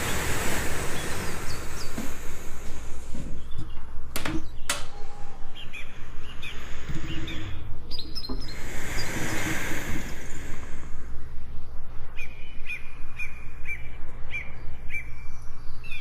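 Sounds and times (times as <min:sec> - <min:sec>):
river water rushing: 0:00.0 - 0:02.9
birds chirping: 0:00.0 - 0:16.0
sharp clicks: 0:04.1 - 0:05.0.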